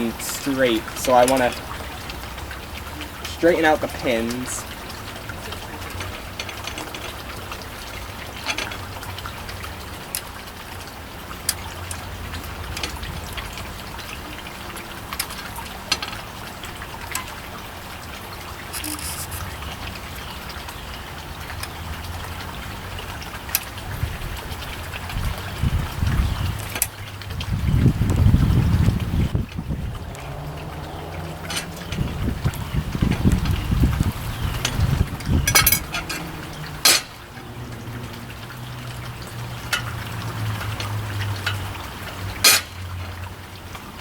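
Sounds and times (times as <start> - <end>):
hand tools clicking: 18.7 - 19.4, 31.4 - 32.0, 35.5 - 37.2, 42.4 - 42.8
wind rumble on microphone: 23.8 - 36.8.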